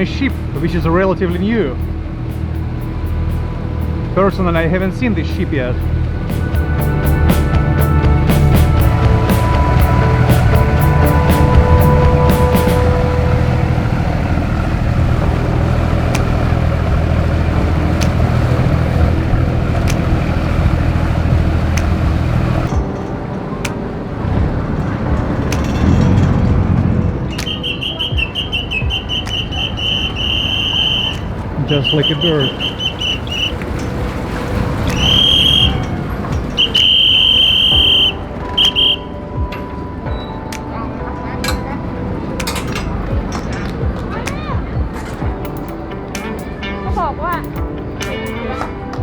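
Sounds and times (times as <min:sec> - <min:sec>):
boat engine droning: 0:00.0 - 0:49.0
high whistle blasts: 0:27.3 - 0:33.6, 0:34.9 - 0:39.2.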